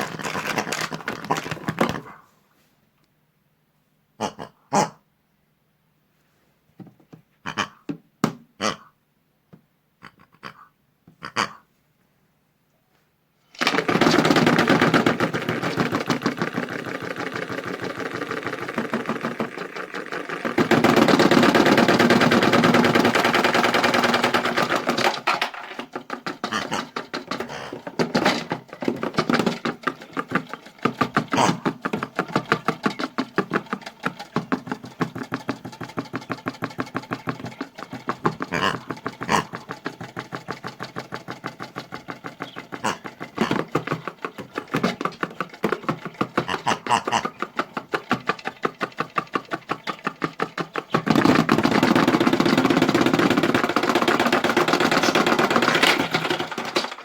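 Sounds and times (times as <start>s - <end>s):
hard objects rattling in drum: 0.0s - 2.1s, 13.6s - 57.0s
toy washing machine motor running: 13.6s - 57.0s.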